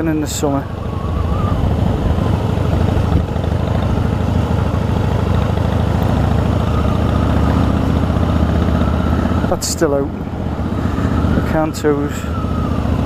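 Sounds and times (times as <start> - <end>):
motorcycle engine running: 0.6 - 13.0.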